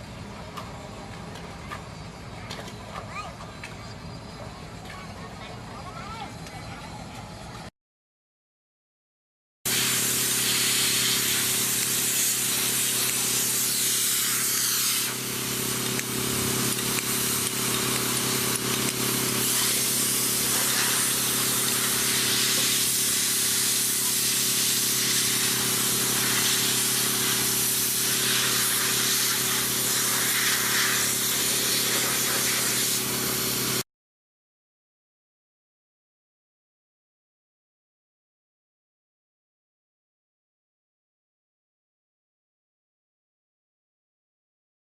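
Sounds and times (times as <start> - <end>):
low machine-like hum: 0.0 - 7.7
loud hiss: 9.7 - 33.8.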